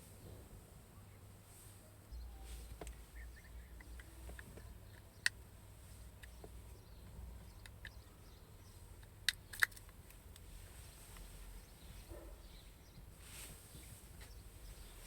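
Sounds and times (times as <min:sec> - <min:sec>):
low background hum: 0:00.0 - 0:15.0
sharp clicks: 0:07.5 - 0:08.1, 0:09.0 - 0:10.5.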